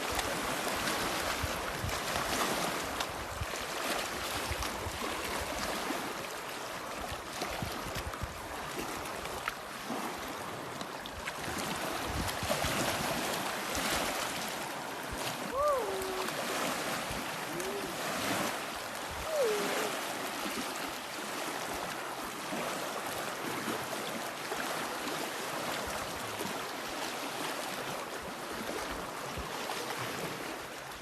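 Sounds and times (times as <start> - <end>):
water splashing around swimmer: 0.0 - 30.7.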